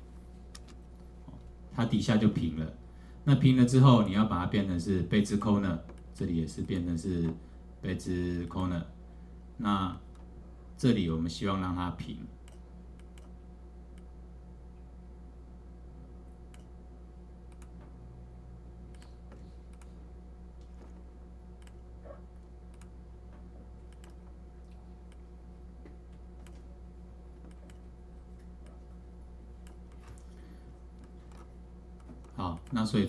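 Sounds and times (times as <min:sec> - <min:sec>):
steady low hum: 0:00.0 - 0:33.0
computer mouse clicks: 0:12.4 - 0:14.1, 0:17.5 - 0:17.8, 0:18.9 - 0:20.0, 0:21.6 - 0:21.8, 0:22.7 - 0:23.0, 0:23.9 - 0:25.2, 0:26.4 - 0:26.7, 0:27.4 - 0:27.8, 0:29.6 - 0:30.2.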